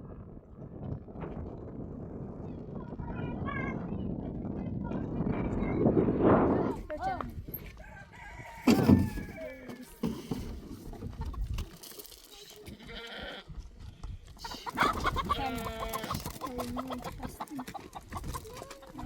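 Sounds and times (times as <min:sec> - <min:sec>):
chicken clucking: 0:07.8 - 0:12.7, 0:14.3 - 0:19.0
goats bleating: 0:12.6 - 0:13.5, 0:14.5 - 0:16.4.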